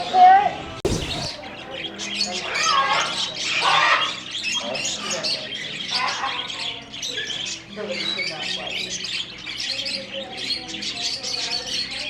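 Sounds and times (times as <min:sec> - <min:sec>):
parrots and pet birds squawking: 0:03.5 - 0:11.8.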